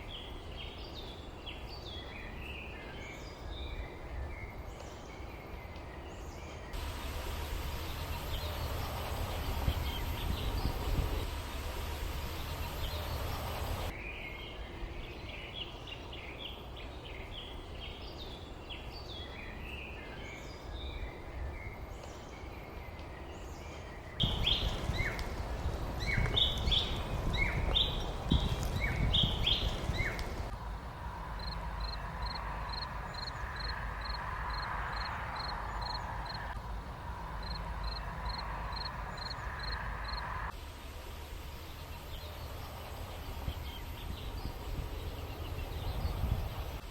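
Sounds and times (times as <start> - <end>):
small birds chirping: 0.0 - 30.5, 41.4 - 46.9
low rumble: 6.8 - 13.9
steady hum: 6.8 - 14.0.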